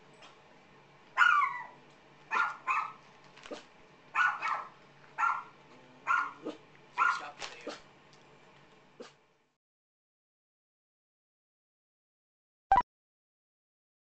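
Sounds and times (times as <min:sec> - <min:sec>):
dog barking: 0:01.2 - 0:07.8.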